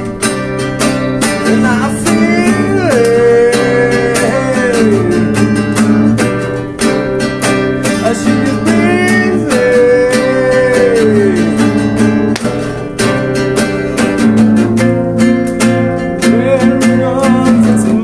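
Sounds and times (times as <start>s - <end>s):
acoustic guitar strumming: 0.0s - 18.0s
person singing: 1.3s - 6.0s, 7.9s - 12.3s, 16.2s - 18.0s.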